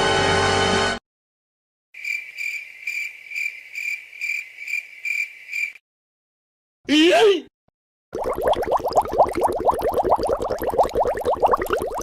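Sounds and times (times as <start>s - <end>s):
cricket chirping: 2.0s - 5.8s.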